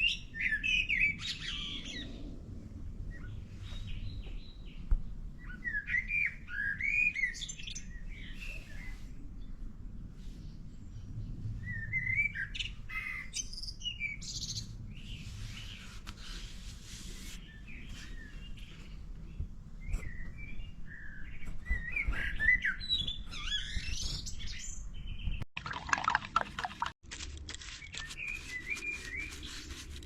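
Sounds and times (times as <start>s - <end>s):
birds chirping: 3.0s - 16.0s, 17.1s - 26.9s.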